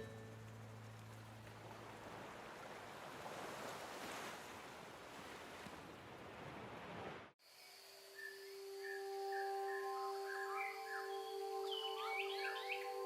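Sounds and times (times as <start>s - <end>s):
faint sea waves washing: 0.0s - 7.4s.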